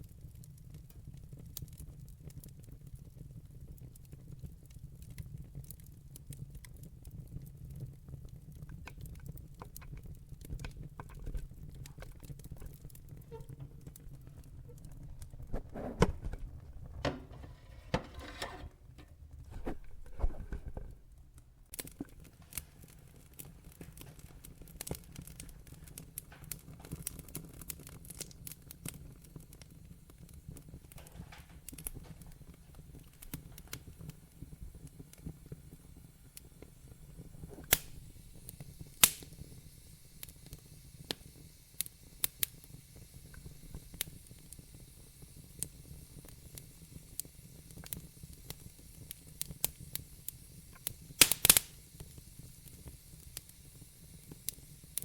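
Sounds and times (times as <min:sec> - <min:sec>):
logs crackling in fire: 0:00.0 - 0:55.0
low fire rumble: 0:00.0 - 0:55.0
loud fire pops: 0:36.6 - 0:42.6, 0:47.0 - 0:55.0.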